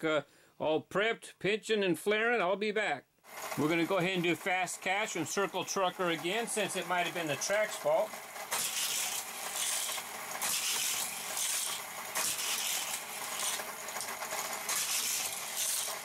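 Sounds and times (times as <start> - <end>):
toy cars rattling on plastic track: 3.3 - 16.0.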